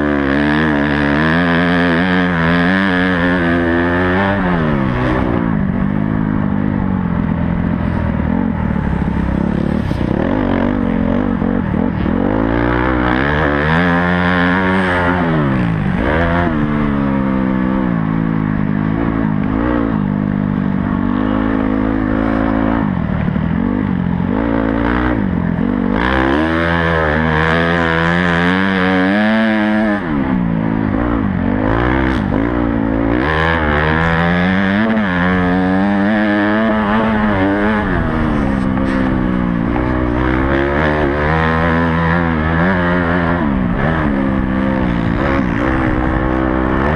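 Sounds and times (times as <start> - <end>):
motocross bike engine revving: 0.0 - 46.9.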